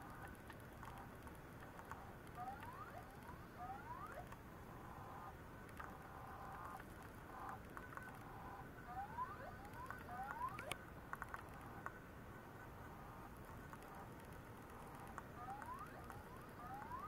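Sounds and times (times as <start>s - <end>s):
hard disk rising chirps: 2.4s - 5.4s, 6.0s - 10.8s, 14.7s - 17.0s.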